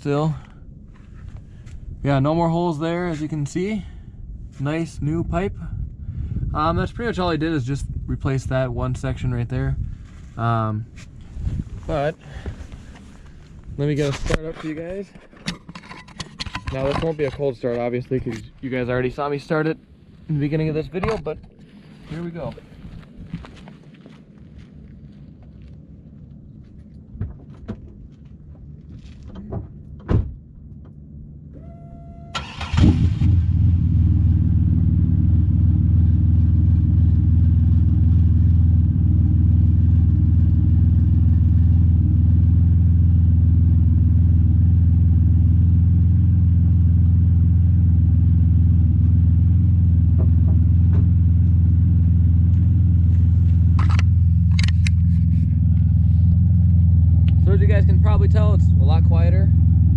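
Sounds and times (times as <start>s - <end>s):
car engine cranking and idling: 0.0s - 59.9s
engine knocks: 50.0s - 51.6s.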